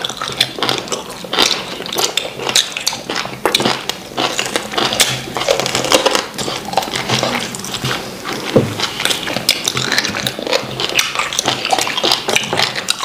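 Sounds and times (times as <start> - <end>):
wet chewing and lip-smacking: 0.0 - 13.0.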